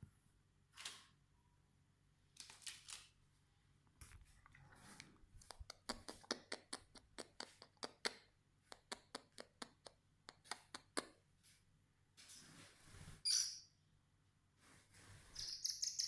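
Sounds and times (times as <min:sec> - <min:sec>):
light sharp clicks and taps: 0:03.8 - 0:11.2.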